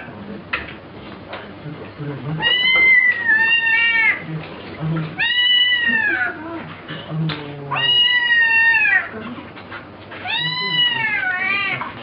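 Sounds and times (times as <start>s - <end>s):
cat meowing: 2.4s - 4.2s, 5.2s - 6.4s, 7.7s - 9.1s, 10.2s - 11.9s.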